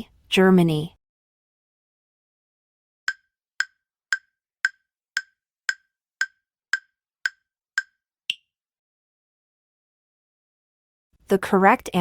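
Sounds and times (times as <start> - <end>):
woodblock-like timer ticks: 3.1 - 8.4.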